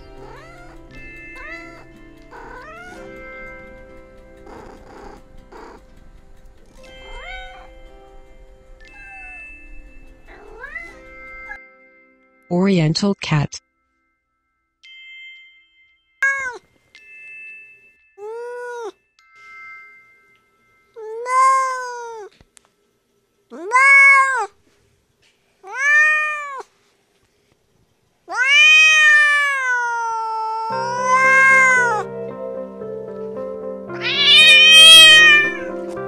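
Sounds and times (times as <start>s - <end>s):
cat meowing: 0.0s - 3.2s, 6.9s - 7.8s, 8.8s - 9.7s, 10.3s - 11.6s, 16.2s - 16.6s, 21.0s - 22.3s, 23.5s - 24.6s, 25.6s - 26.7s, 28.3s - 32.1s, 34.0s - 35.8s.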